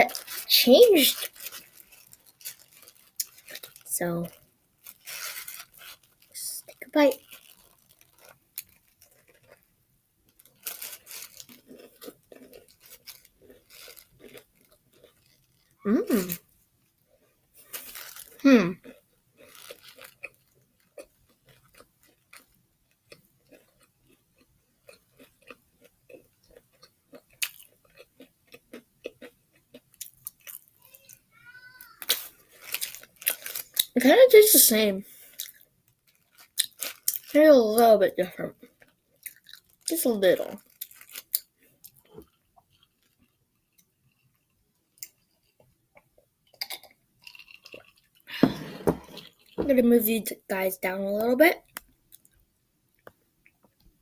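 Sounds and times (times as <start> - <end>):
chewing crunches: 1.1 - 16.5, 17.2 - 31.2, 31.9 - 34.0, 35.2 - 37.4, 38.6 - 39.9, 40.6 - 48.4.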